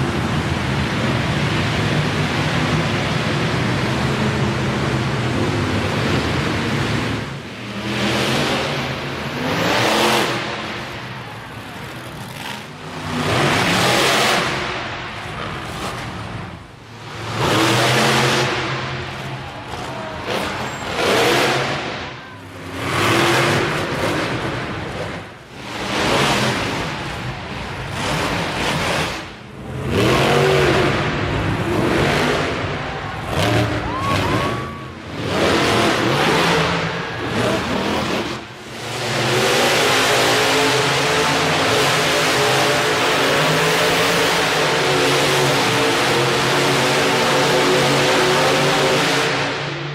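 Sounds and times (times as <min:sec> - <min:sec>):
truck engine revving: 0:00.0 - 0:49.8.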